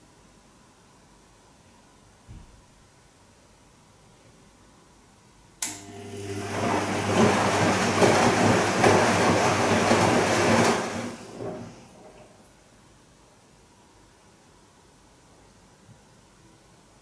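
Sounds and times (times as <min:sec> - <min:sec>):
washing machine motor click: 0:05.6 - 0:07.2
washing machine drum humming: 0:05.7 - 0:12.5.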